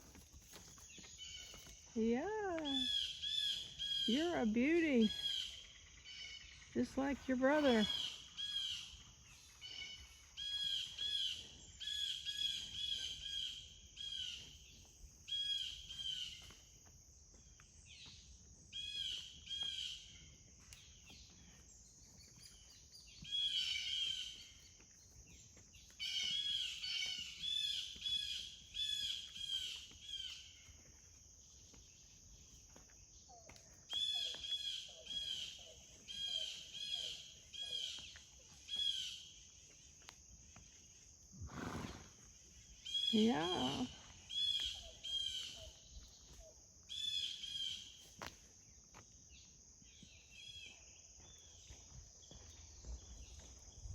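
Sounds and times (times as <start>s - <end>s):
songbird chirping: 0.1s - 41.0s, 41.9s - 53.9s
lower bird calls: 2.7s - 16.5s.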